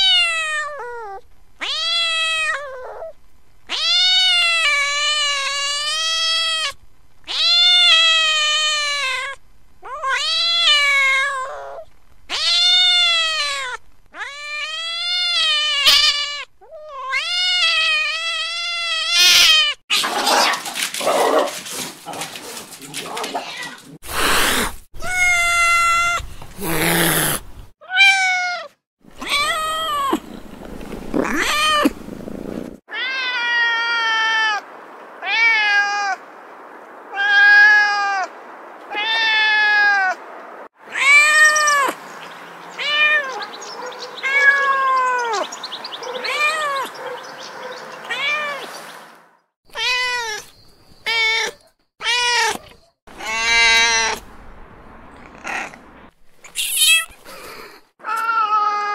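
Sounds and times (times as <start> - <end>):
kittens meowing: 0.0 - 3.1, 3.7 - 20.1, 23.4 - 32.0, 40.9 - 42.0, 44.2 - 45.5, 46.2 - 47.0, 48.1 - 48.7, 49.7 - 54.2, 55.1 - 58.9.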